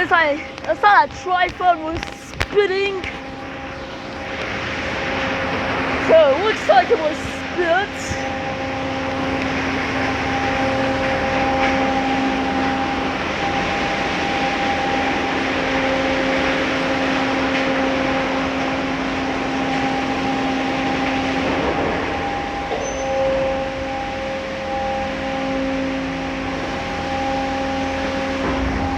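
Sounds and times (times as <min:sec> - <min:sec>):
motor humming: 0:00.0 - 0:22.8.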